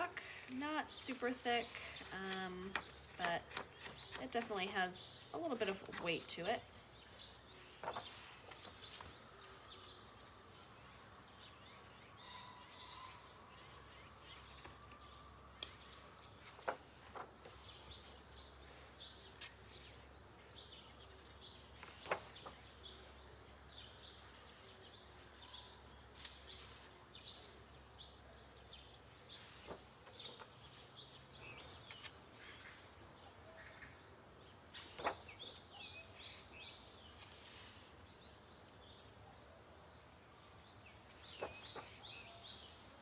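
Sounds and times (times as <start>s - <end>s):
paper pages rustling: 0.2s - 6.6s, 7.5s - 10.0s, 14.2s - 20.1s, 21.8s - 23.2s, 25.1s - 27.0s, 29.4s - 32.8s, 34.7s - 38.0s, 41.1s - 43.0s
paper clicks and taps: 2.0s - 4.7s.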